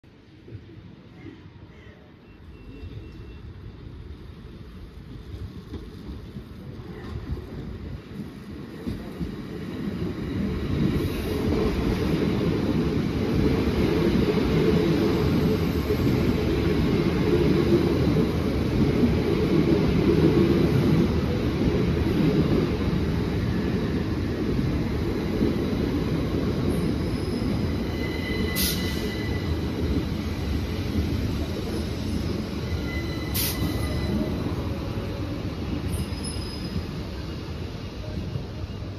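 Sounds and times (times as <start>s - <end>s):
high squeals: 26.8s - 29.7s, 31.8s - 34.6s.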